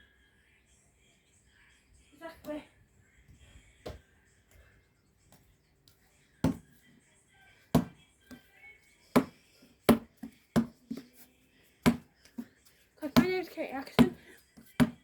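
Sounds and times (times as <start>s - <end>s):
basketball bouncing: 6.5s - 6.7s, 7.8s - 8.0s, 9.9s - 11.0s, 11.9s - 12.1s, 13.1s - 14.2s, 14.8s - 15.0s.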